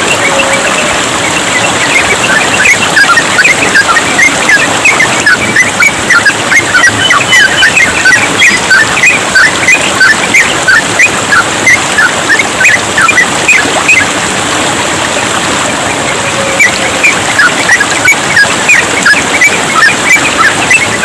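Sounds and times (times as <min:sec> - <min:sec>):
bird chattering chirps: 0:00.0 - 0:10.6
running water babbling: 0:00.0 - 0:21.0.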